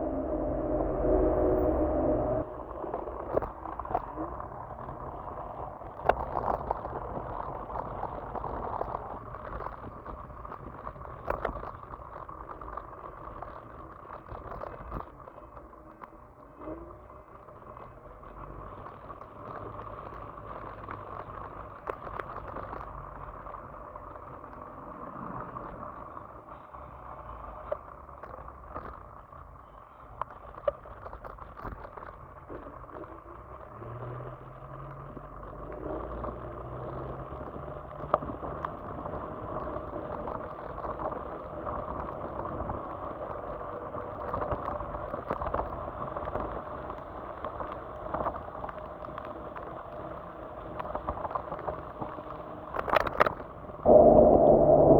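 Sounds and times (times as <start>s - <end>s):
electric scooter motor whine: 0.0s - 6.0s
road and tyre noise: 0.0s - 54.9s.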